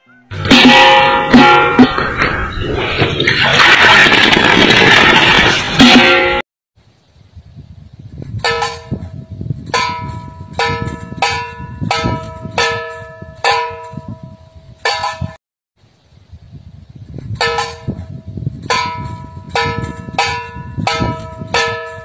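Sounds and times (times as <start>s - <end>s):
clangs on metal: 0.3s - 2.1s, 8.4s - 15.4s, 17.4s - 18.1s, 18.7s - 22.0s.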